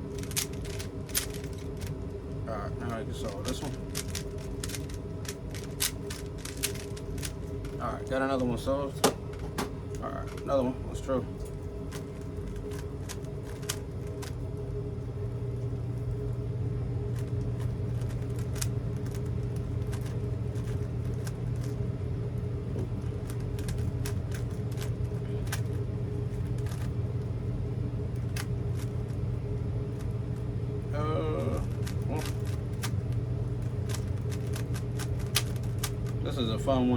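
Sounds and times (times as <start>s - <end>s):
low steady hum: 0.0s - 36.9s
plastic puzzle cube clicking: 0.2s - 1.9s, 3.6s - 7.4s, 31.7s - 33.0s, 33.8s - 35.9s.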